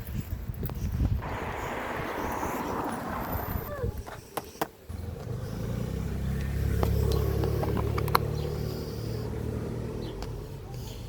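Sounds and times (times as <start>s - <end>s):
vehicle engine running: 1.2s - 4.1s.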